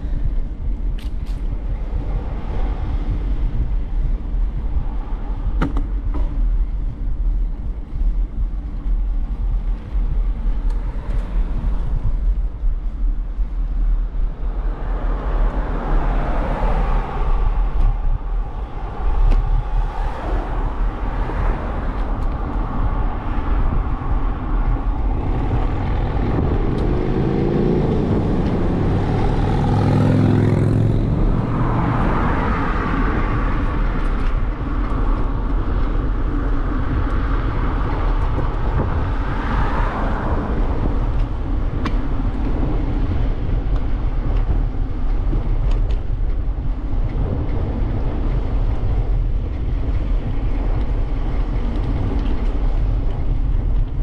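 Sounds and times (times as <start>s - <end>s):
bicycle rolling noise: 0.0s - 54.0s
wind rumble: 0.0s - 54.0s
motor vehicle passing: 14.4s - 43.6s.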